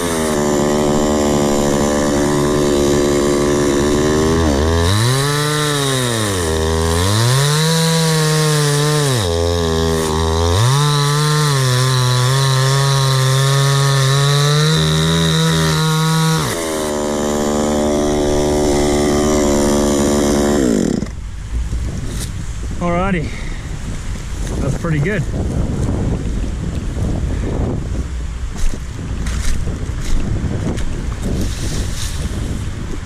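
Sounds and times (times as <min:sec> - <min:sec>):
chainsaw cutting log: 0:00.0 - 0:21.2.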